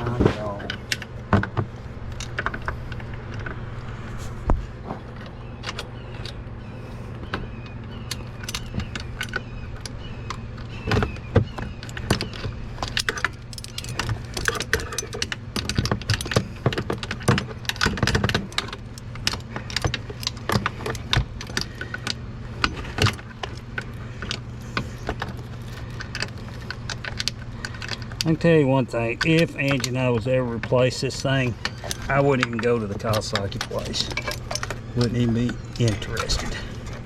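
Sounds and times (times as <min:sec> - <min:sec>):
steady low hum: 0:00.0 - 0:37.0
metal tools clinking and scraping: 0:12.8 - 0:37.0.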